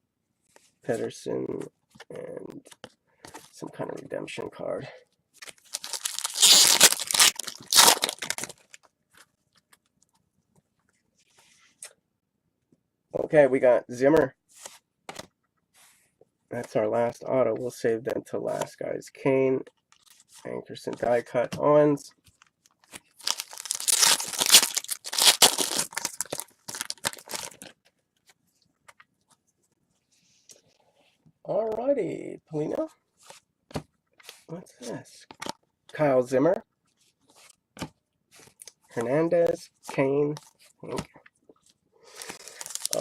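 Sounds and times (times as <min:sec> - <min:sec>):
foil wrapper tearing and crinkling: 0:05.7 - 0:08.8, 0:23.2 - 0:27.7, 0:42.1 - 0:43.0.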